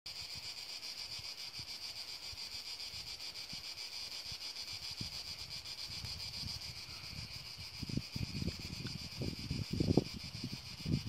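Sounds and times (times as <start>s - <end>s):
high-pitched insect chorus: 0.1s - 11.0s
wind buffeting microphone: 4.7s - 11.0s.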